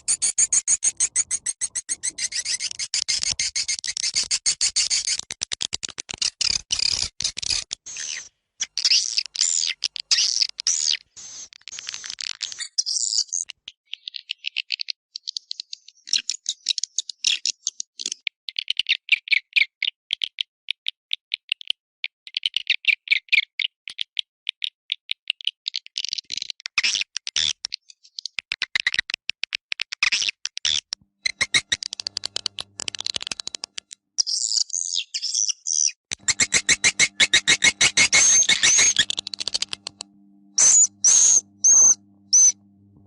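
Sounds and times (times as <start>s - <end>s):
swiftlets chittering: 36.2s - 42.6s.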